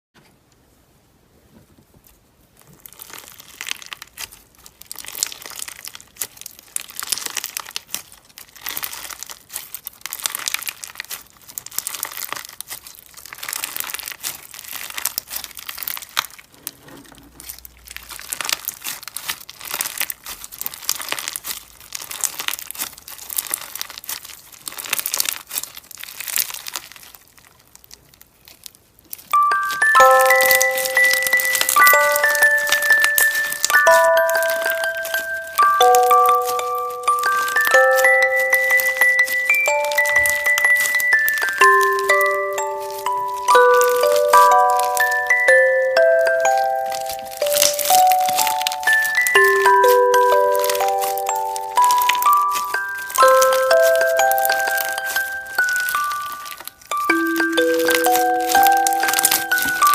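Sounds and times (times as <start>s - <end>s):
paper crinkling and scratching: 2.6s - 59.9s
bell-like background music: 29.4s - 59.9s.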